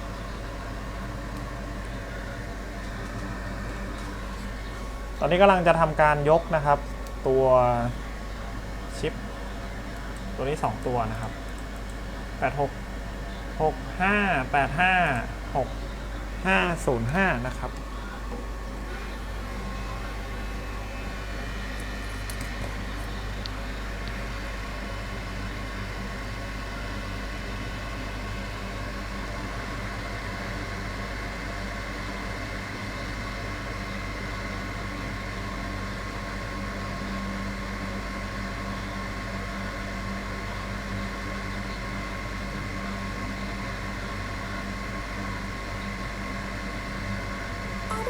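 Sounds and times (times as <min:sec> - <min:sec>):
hot-air station blowing: 0:00.0 - 0:25.6.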